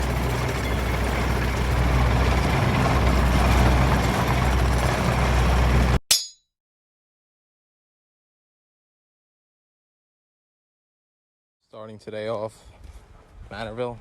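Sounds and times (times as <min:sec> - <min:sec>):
heavy engine droning: 0:00.0 - 0:06.0.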